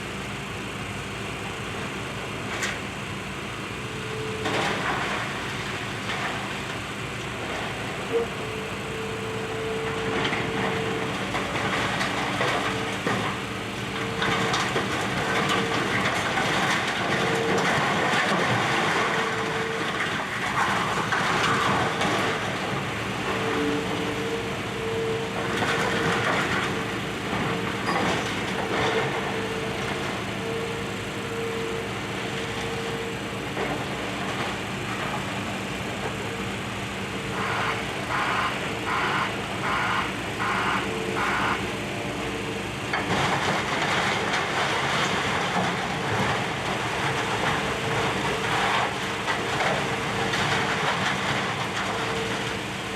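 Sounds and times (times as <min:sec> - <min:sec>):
diesel engine running: 0:00.0 - 0:52.9
whining tone: 0:37.2 - 0:42.4.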